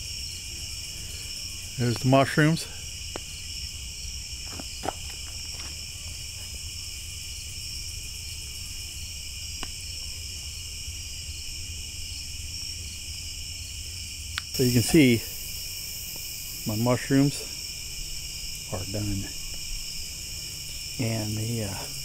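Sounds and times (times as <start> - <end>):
crickets chirring: 0.0 - 22.0.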